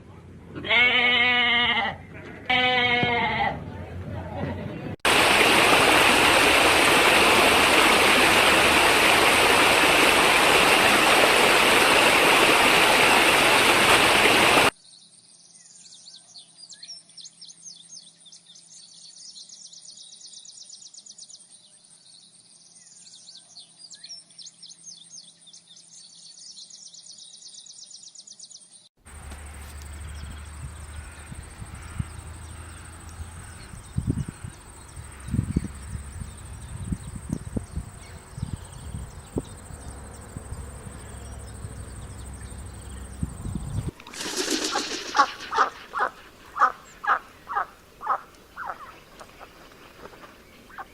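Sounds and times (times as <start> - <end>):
steady rush of water: 5.0 - 14.7, 43.9 - 50.9.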